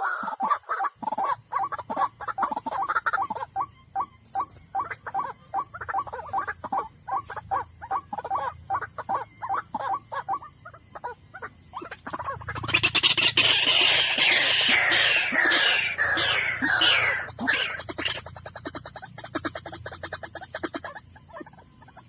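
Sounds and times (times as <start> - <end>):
bird clucking calls: 0.0 - 22.0.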